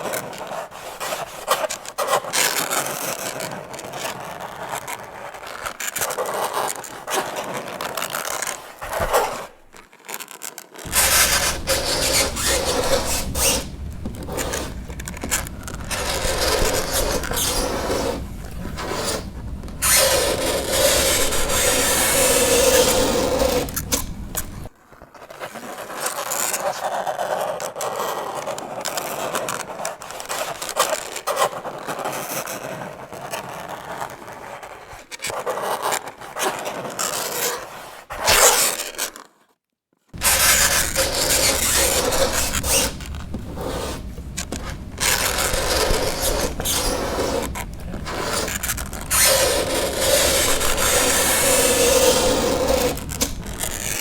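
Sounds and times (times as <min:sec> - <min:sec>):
fingernails scraping chalkboard: 0:10.8 - 0:24.7, 0:40.2 - 0:54.0.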